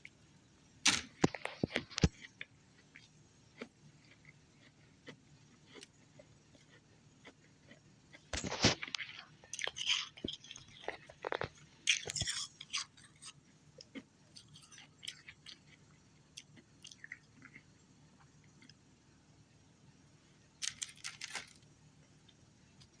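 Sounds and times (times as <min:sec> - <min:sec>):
person crunching ice: 0:08.4 - 0:12.5.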